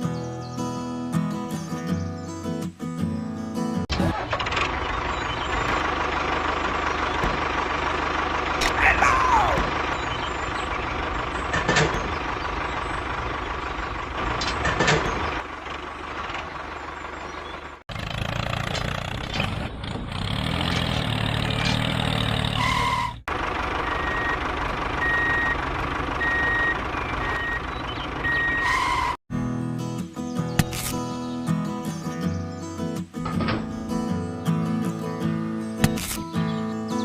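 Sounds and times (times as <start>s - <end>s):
vehicle engine whining: 3.9s - 29.2s
reversing beeper: 23.8s - 25.6s, 26.2s - 29.2s.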